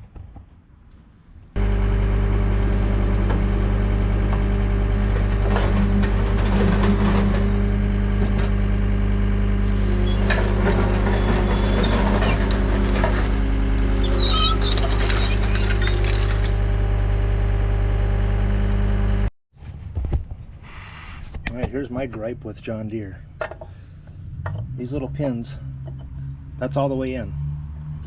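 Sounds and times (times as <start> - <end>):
diesel engine idling: 1.6 - 18.9.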